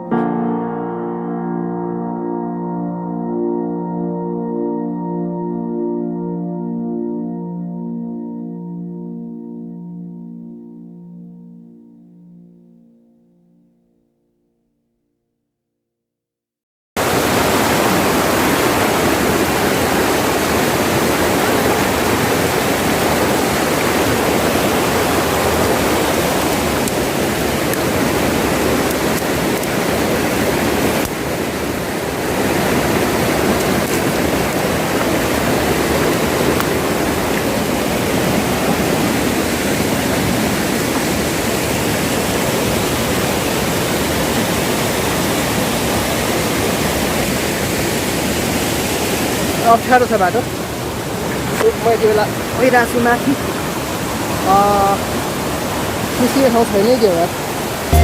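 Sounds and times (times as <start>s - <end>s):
waterfall and river rushing: 17.0s - 58.0s.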